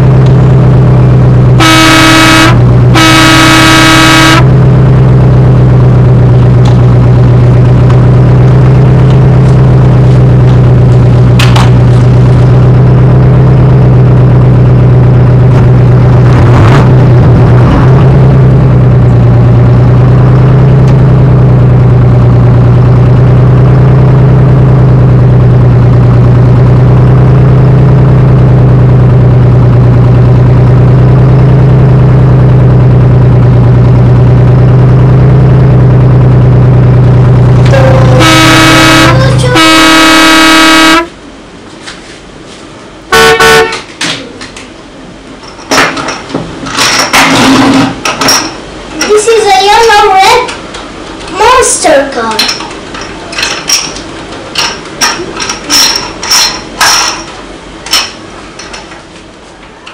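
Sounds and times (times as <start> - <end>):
large vehicle engine idling: 0.0 - 40.3
long horn blasts: 0.0 - 41.2, 43.1 - 43.9.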